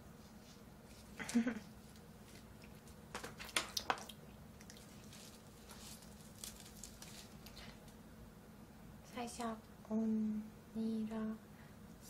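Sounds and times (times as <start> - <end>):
wet mouth clicks while chewing: 3.8 - 4.9.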